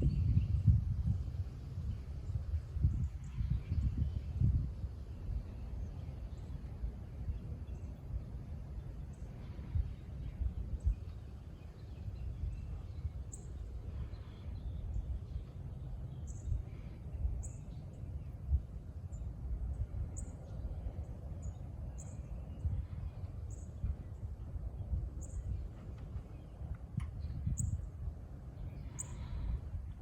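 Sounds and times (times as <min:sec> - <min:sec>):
wind rumbling on microphone: 0:00.0 - 0:30.0.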